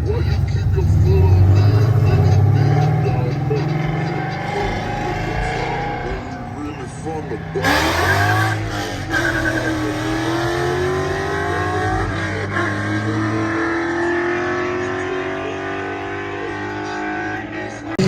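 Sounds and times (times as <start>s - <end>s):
low steady engine hum: 0.0s - 13.4s
car engine accelerating: 0.0s - 18.0s.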